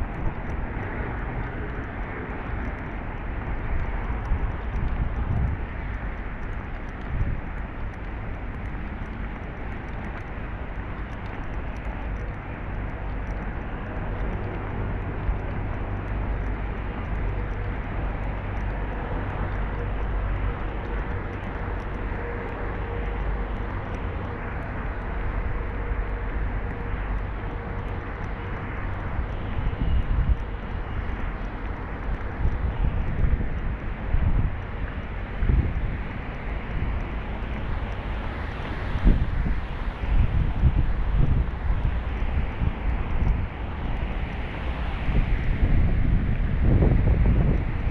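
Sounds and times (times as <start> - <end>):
faint whine: 0.0 - 47.9.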